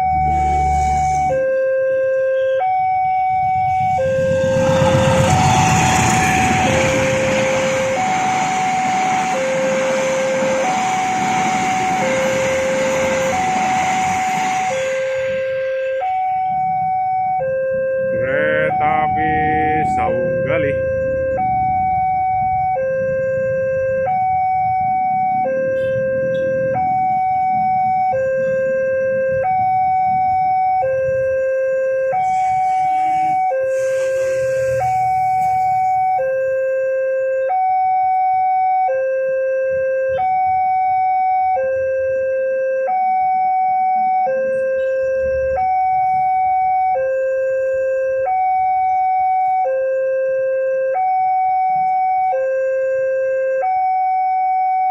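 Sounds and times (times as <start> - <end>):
level crossing two-tone alarm: 0.0 - 54.9
low rumble: 2.9 - 18.3.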